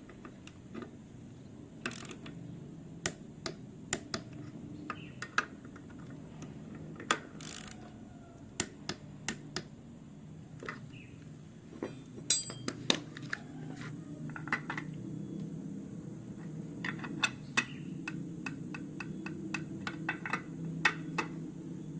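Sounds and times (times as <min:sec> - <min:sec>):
metal parts and tools clinking: 0:11.8 - 0:13.2.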